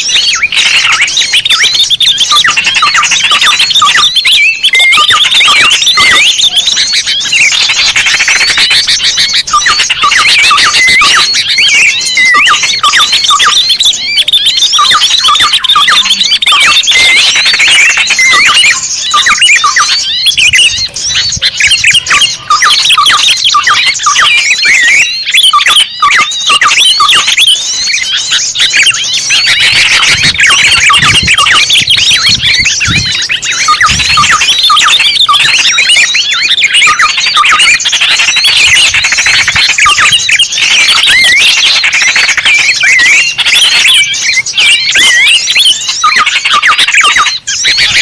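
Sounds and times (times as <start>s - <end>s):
songbirds chirping and twittering: 0.0s - 48.0s.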